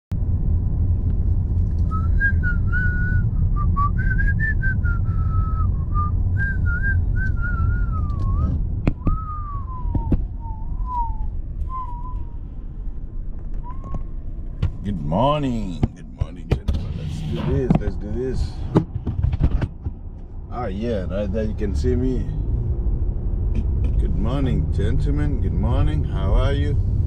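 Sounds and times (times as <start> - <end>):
heavy low rumble: 0.1 - 27.0
person whistling a tune: 1.9 - 12.3, 13.6 - 14.0.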